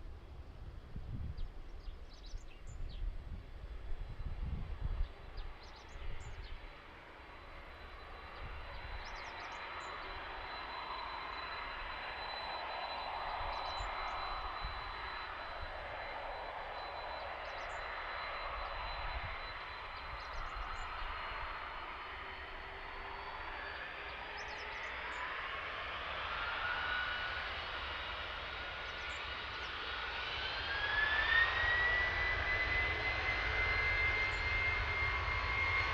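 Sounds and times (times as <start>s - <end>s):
wind rumble on microphone: 0.0s - 6.6s
jet engines whining: 3.4s - 35.9s.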